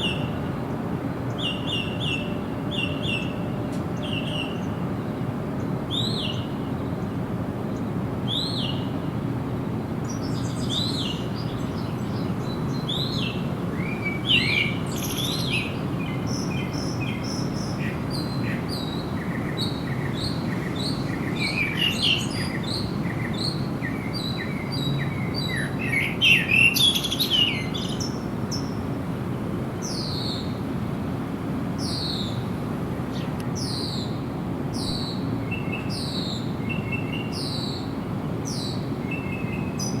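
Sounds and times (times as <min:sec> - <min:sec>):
birds chirping and trilling: 0:10.1 - 0:28.8.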